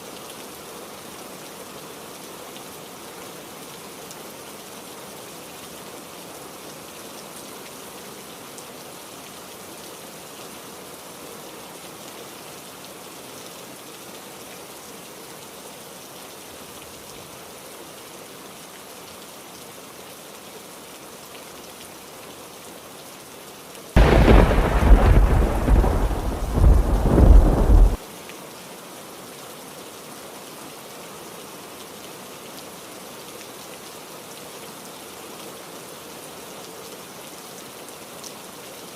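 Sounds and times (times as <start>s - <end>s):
heavy rain: 0.0s - 28.1s
loud thunderclap: 24.0s - 28.0s.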